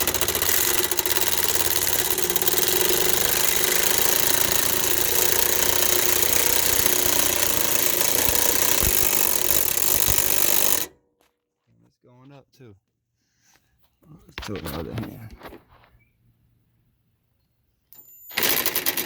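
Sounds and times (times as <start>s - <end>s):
impact driver hammering: 0.0s - 10.9s.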